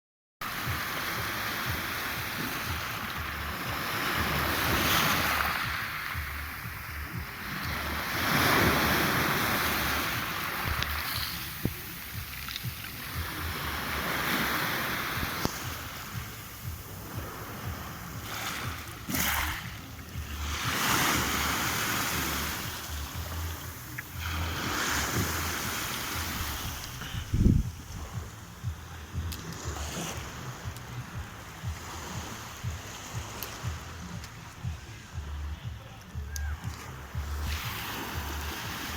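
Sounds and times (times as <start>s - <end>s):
sea surf washing in: 0.4s - 35.8s, 36.7s - 38.9s
wind buffeting microphone: 22.2s - 29.8s.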